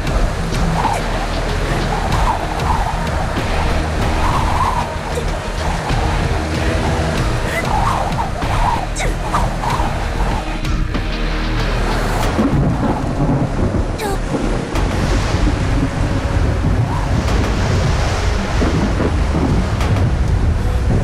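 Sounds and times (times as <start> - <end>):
thunder cracks: 0.0 - 11.0, 12.2 - 21.0
heavy rain: 0.0 - 21.0
low rumble of thunder: 12.2 - 21.0.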